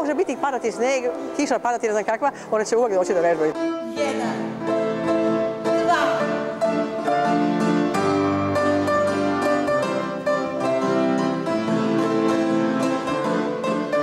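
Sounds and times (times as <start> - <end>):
classical keyboard music: 0.0 - 14.0.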